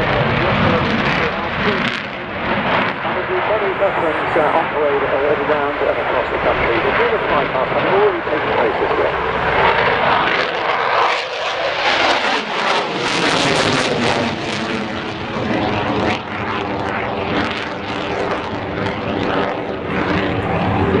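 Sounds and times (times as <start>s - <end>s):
jet engine roar: 0.0s - 21.0s.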